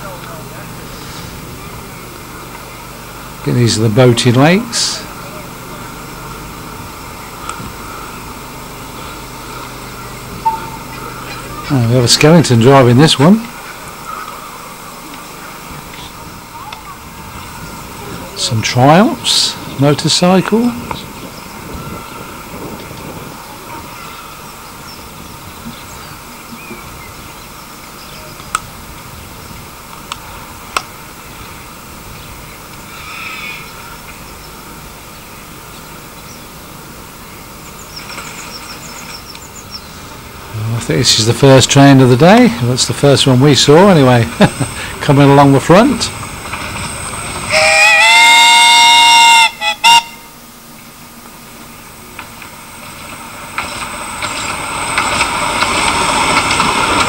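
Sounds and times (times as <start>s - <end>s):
outdoor background noise: 0.0s - 57.0s
faint bird chirps: 6.9s - 11.7s
locomotive whistle blasts: 10.4s - 11.7s, 47.4s - 50.4s.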